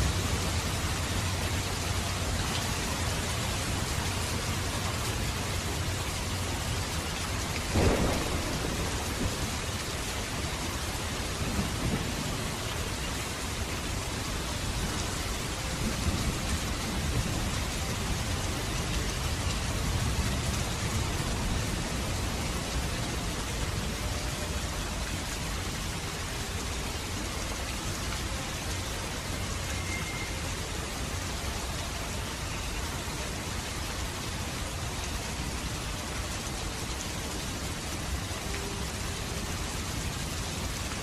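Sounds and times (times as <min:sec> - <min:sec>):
heavy rain falling: 0:00.0 - 0:41.0
thunder rumbling: 0:07.6 - 0:13.4.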